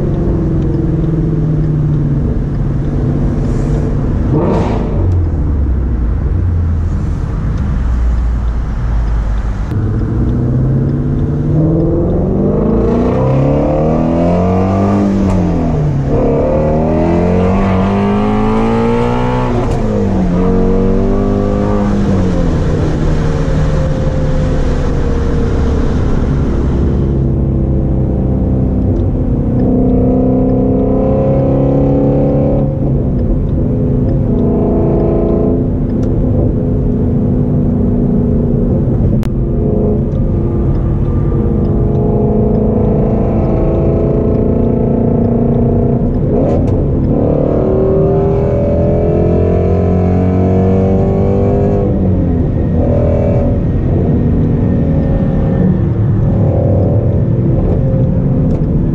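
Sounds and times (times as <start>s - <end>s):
car engine accelerating: 0.0s - 58.9s.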